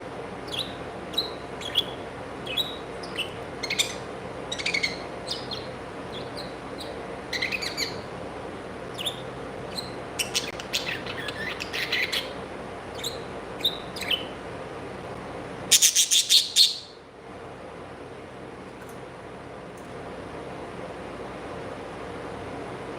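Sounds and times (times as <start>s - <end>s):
low steady hum: 0.0s - 22.9s
pet birds chirping: 0.3s - 8.1s, 8.8s - 14.4s, 15.7s - 17.0s.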